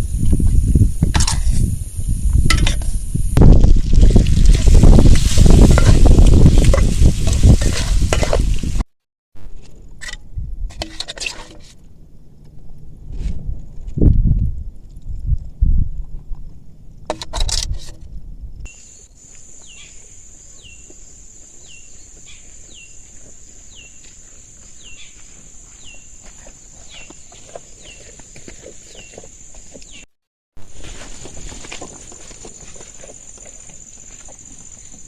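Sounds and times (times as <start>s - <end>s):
rustling: 26.2s - 35.0s.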